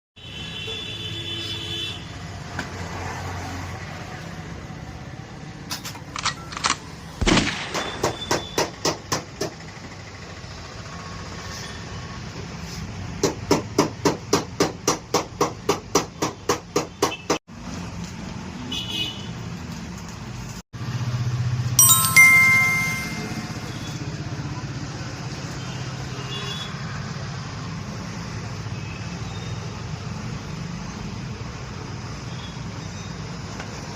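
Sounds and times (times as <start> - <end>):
short multi-pitched tone: 21.8 - 23.8.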